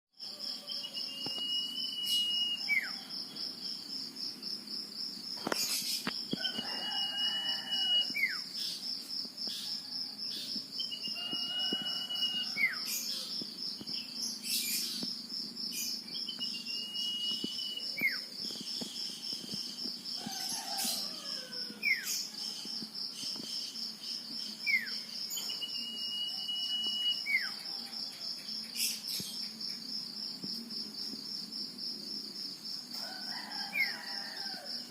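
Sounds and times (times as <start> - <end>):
cricket trill: 0.2 - 34.9
bird whistling: 0.8 - 3.0, 16.2 - 18.2, 25.4 - 27.6.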